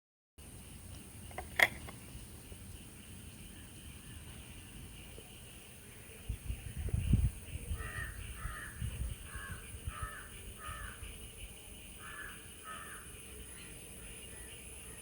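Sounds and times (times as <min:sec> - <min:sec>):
crow cawing: 0:07.8 - 0:11.0, 0:12.0 - 0:13.6.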